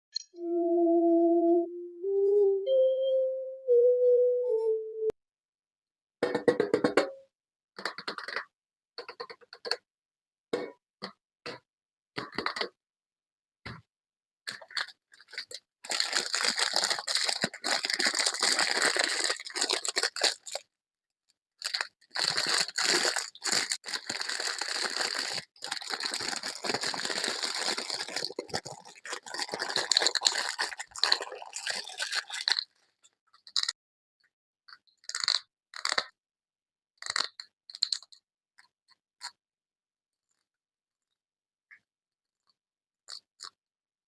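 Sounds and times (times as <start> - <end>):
packaging tearing and crinkling: 15.3 - 20.6, 21.6 - 32.7.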